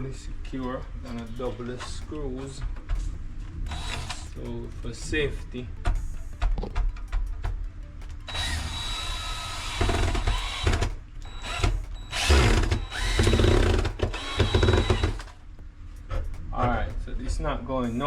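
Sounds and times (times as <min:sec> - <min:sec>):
power drill driving screws: 0:03.7 - 0:04.3, 0:08.3 - 0:15.4.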